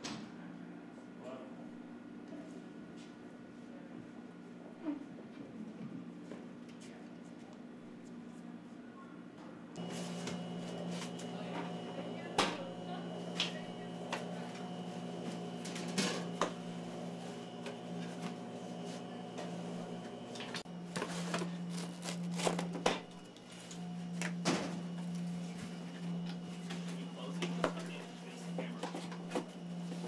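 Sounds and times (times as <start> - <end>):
low machine hum: 6.9 - 30.0.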